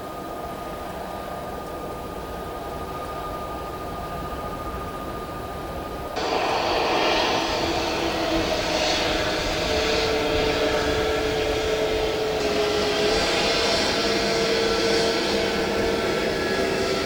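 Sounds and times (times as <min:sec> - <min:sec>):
jet engines whining: 0:06.2 - 0:17.0.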